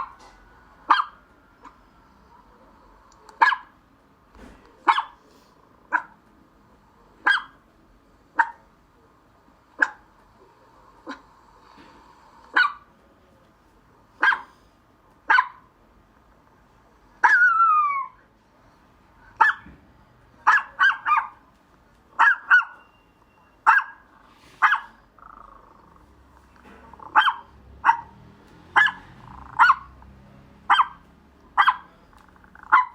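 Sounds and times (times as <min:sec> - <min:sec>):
dog barking: 0:00.9 - 0:01.8, 0:03.4 - 0:03.8, 0:04.8 - 0:05.2, 0:05.9 - 0:06.2, 0:07.2 - 0:07.6, 0:08.4 - 0:08.6, 0:09.8 - 0:10.0, 0:12.5 - 0:12.9, 0:14.2 - 0:14.6, 0:15.3 - 0:15.7, 0:17.2 - 0:18.1, 0:19.4 - 0:19.7, 0:20.4 - 0:21.4, 0:22.2 - 0:22.9, 0:23.6 - 0:25.0, 0:27.0 - 0:30.0, 0:30.6 - 0:32.0, 0:32.6 - 0:32.9.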